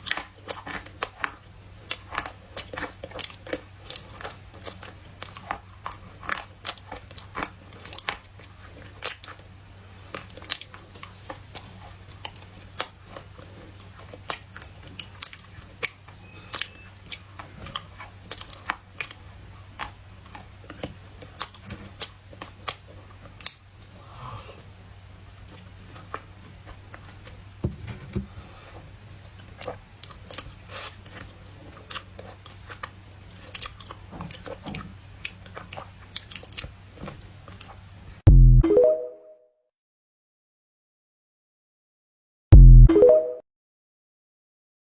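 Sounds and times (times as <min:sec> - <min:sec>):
clay being chewed crunching: 0:00.0 - 0:24.0, 0:28.7 - 0:37.9.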